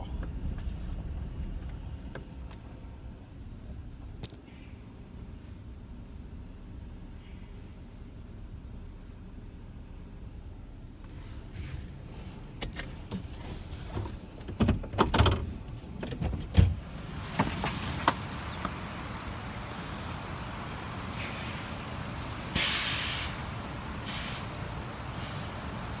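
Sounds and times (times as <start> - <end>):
vehicle knocks and clunks: 0.0 - 4.5, 11.5 - 20.6
low vehicle rumble: 0.0 - 26.0
short hiss: 22.5 - 25.6.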